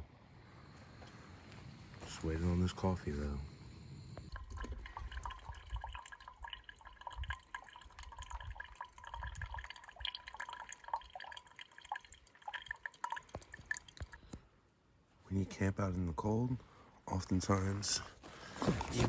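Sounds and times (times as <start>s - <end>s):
water heating with small pops: 4.2s - 14.4s.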